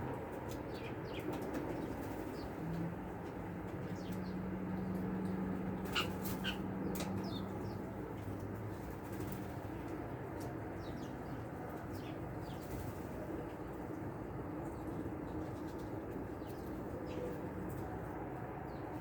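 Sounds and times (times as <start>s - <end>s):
songbirds chip calls: 3.8s - 8.2s.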